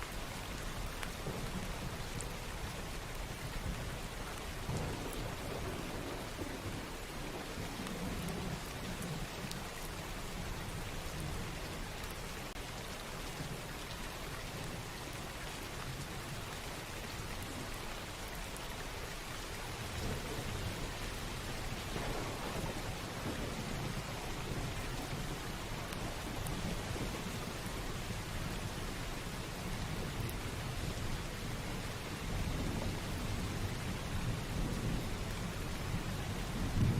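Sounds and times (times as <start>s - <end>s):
steady rainfall: 0.0s - 36.9s
low rolling thunder: 4.5s - 9.4s, 19.9s - 28.5s, 29.6s - 36.9s.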